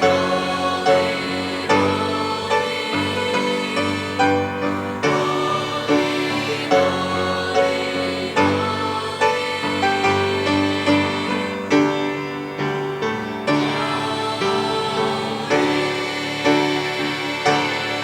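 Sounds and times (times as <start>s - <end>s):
gospel music: 0.0s - 18.0s.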